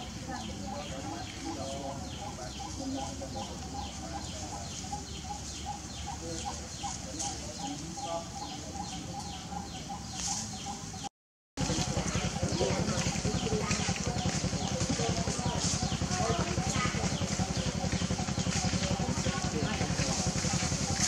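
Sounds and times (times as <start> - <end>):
birds calling: 0.0 - 21.0
steady low rumble: 11.6 - 21.0.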